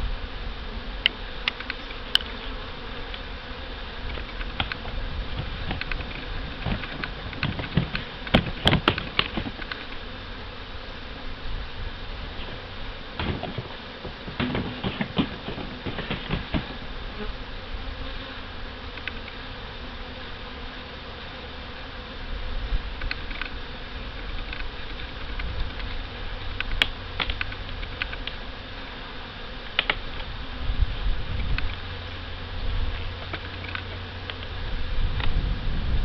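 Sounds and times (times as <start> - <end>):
bees buzzing: 0.0 - 36.0
sharp clicks and knocks: 4.0 - 10.0, 13.2 - 16.8, 26.6 - 28.4, 29.7 - 30.3.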